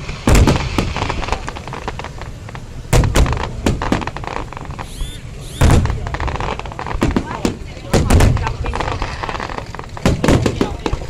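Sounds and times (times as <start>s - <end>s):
fireworks bangs with crackling: 0.0s - 11.0s
high gliding whistle: 4.8s - 5.7s.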